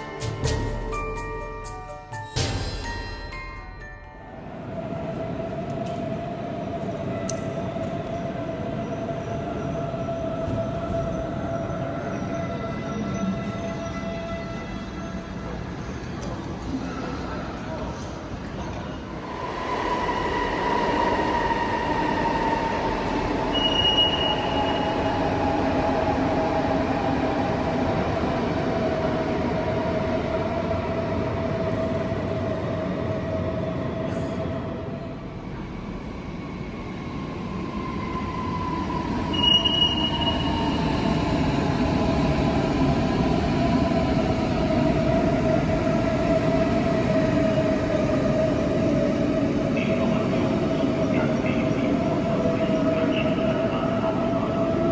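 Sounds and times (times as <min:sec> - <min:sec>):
electric train whine: 0:00.0 - 0:54.9
high-pitched squeals: 0:37.4 - 0:42.0.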